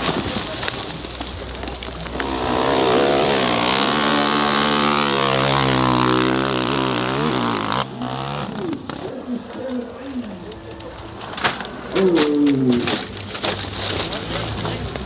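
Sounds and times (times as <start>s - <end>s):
dirt bike engine at high revs: 2.1s - 9.0s.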